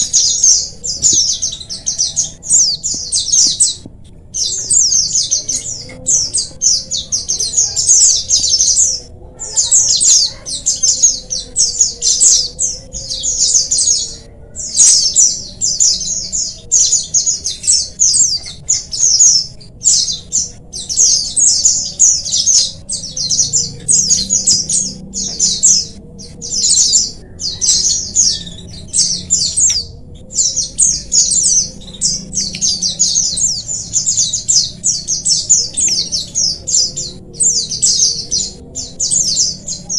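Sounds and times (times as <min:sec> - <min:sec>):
birds twittering chorus: 0:00.0 - 0:39.9.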